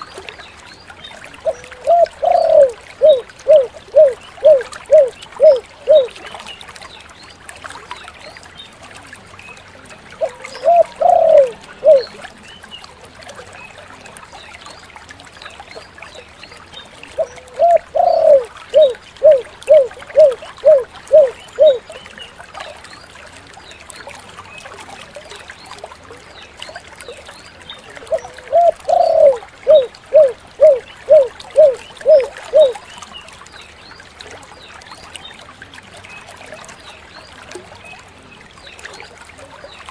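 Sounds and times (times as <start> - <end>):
dove cooing: 1.4 - 6.2, 10.2 - 12.1, 17.2 - 21.9, 28.1 - 32.8.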